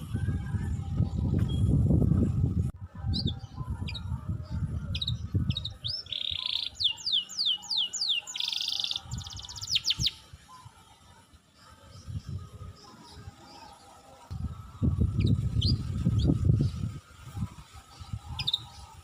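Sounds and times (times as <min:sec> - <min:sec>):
low rumble on microphone: 0:00.0 - 0:05.9
songbird singing: 0:03.0 - 0:19.0.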